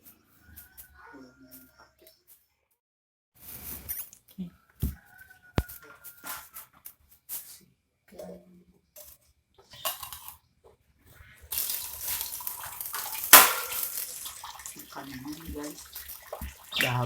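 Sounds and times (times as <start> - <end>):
running water splashing: 11.5 - 17.0
sharp loud knock: 13.4 - 13.8.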